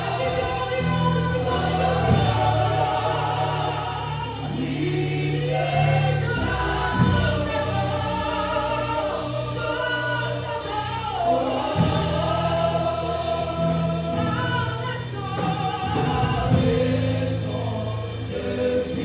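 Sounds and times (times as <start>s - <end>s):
choir singing gospel: 0.0s - 19.0s
instrumental backing with bass: 0.0s - 19.0s.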